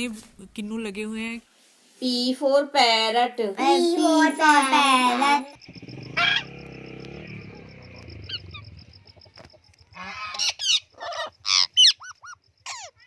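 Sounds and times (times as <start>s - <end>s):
parrot squawking: 6.2s - 6.5s, 10.0s - 13.0s.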